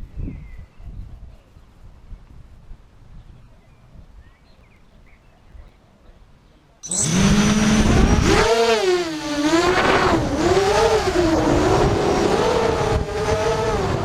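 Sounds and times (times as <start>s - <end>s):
quadcopter motors whining: 6.8s - 14.0s.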